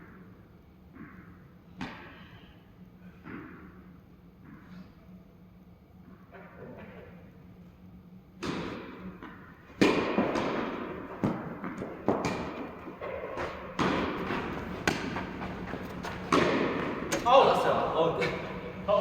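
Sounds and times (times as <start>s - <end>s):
tennis ball hit by rackets: 9.8s - 17.3s.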